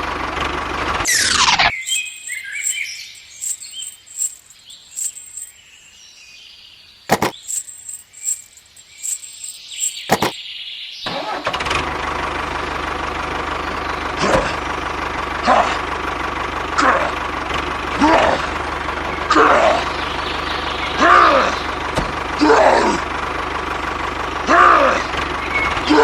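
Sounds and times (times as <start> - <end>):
birds chirping: 1.7 - 11.0
sharp clicks: 7.1 - 10.4.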